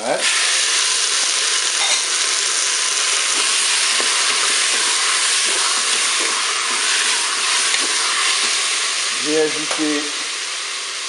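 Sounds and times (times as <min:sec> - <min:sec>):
vegetables sizzling in oil: 0:00.0 - 0:11.0
wooden spatula stirring and scraping: 0:03.1 - 0:09.0.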